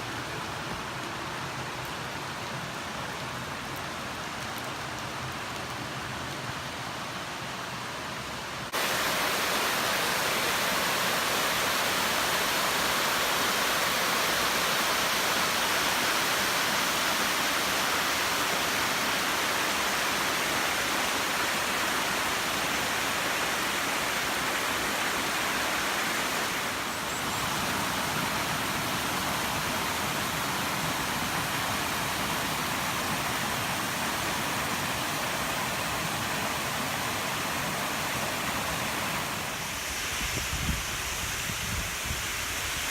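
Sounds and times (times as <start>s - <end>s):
waterfall rushing: 8.7s - 42.9s.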